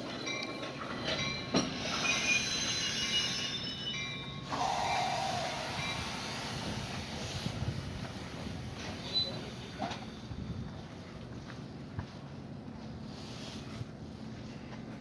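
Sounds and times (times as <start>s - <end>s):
hiss: 4.5s - 10.2s, 13.1s - 13.8s.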